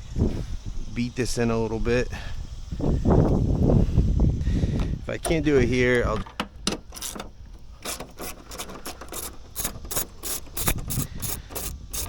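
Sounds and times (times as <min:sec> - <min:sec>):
hand tool rasping on metal: 0:07.8 - 0:12.0.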